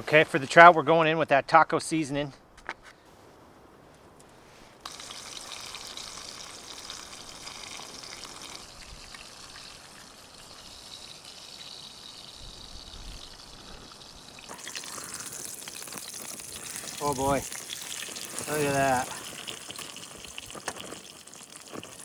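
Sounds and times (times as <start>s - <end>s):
fish sizzling in a pan: 4.8s - 22.0s.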